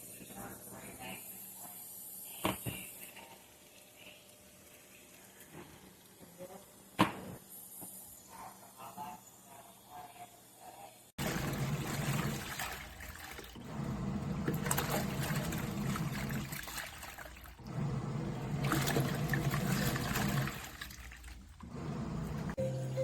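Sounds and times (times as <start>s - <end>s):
water sloshing in washing machine: 11.2s - 22.6s.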